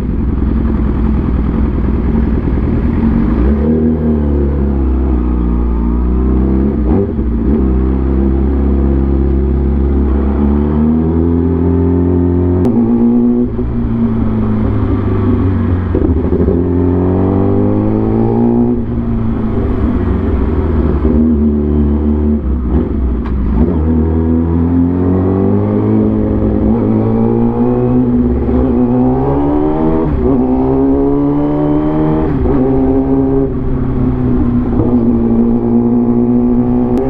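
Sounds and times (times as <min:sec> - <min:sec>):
vehicle engine accelerating: 0:00.0 - 0:37.0.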